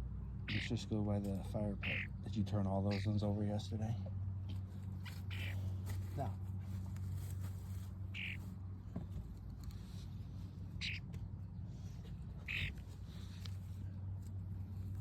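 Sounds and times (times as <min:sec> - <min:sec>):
bird harsh calls: 0:00.2 - 0:00.9, 0:01.5 - 0:03.4, 0:04.7 - 0:05.8, 0:08.0 - 0:08.6, 0:10.6 - 0:14.0.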